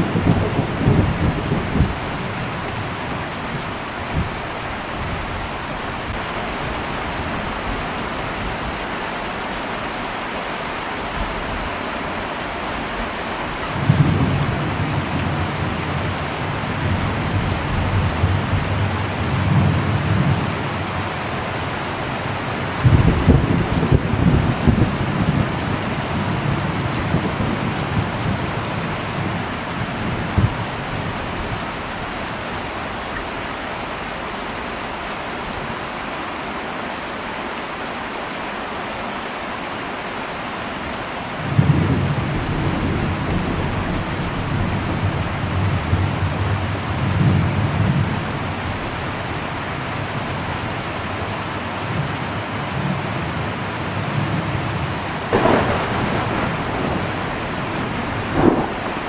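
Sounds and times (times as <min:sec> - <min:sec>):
thunder rumbling: 0:00.0 - 0:08.0, 0:13.4 - 0:32.1, 0:52.7 - 0:59.0
heavy rain on a metal roof: 0:00.0 - 0:59.0.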